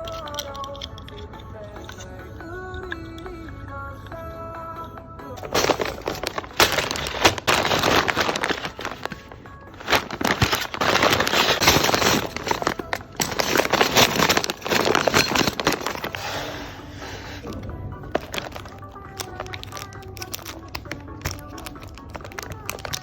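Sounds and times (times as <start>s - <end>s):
plastic packing material crinkling: 5.4s - 23.0s.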